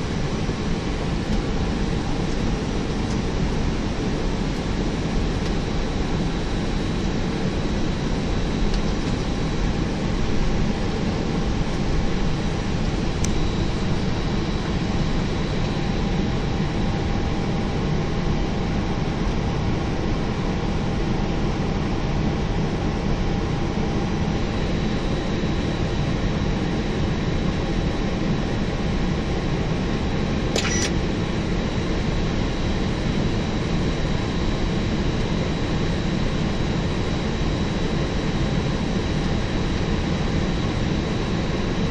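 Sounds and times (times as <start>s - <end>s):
cockpit airflow and engine noise: 0.0s - 41.9s
short click: 30.6s - 31.0s.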